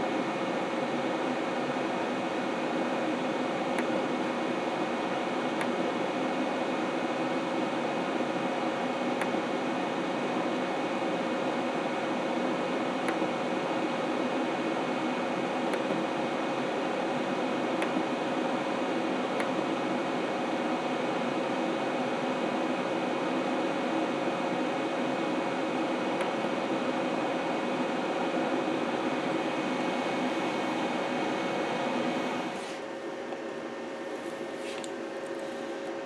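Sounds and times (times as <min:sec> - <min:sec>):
steady hum: 0:26.1 - 0:36.0.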